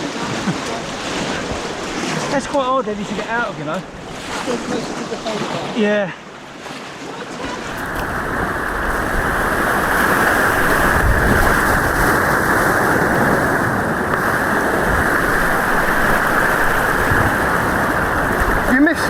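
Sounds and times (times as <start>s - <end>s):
white water rushing: 0.0s - 19.0s.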